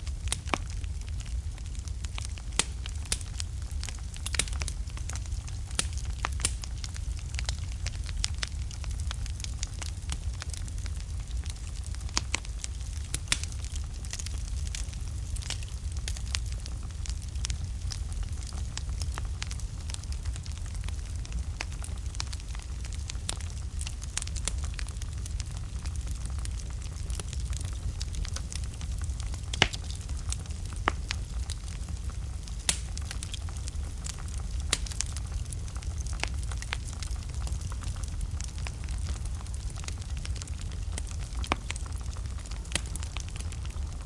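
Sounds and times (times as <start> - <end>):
low rumble of flames: 0.0 - 44.0
wood fire crackling and popping: 0.0 - 44.0.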